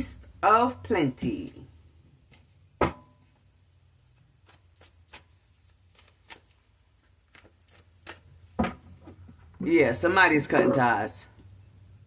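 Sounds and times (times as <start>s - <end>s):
cards being shuffled: 4.0s - 8.5s.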